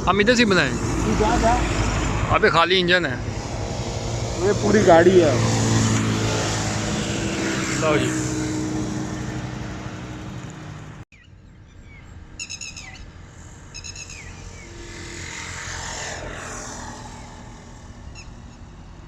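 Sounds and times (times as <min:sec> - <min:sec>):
diesel locomotive engine running: 0:00.0 - 0:19.0
birds chirping: 0:09.9 - 0:15.3.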